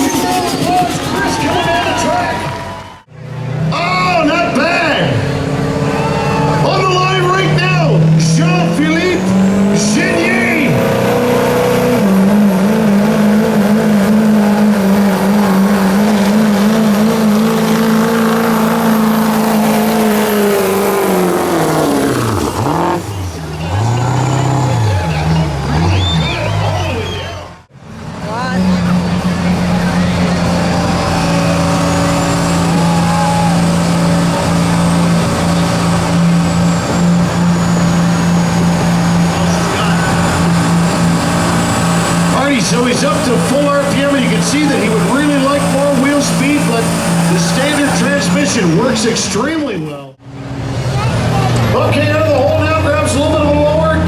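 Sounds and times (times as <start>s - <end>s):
truck engine at high revs: 0.0s - 54.0s.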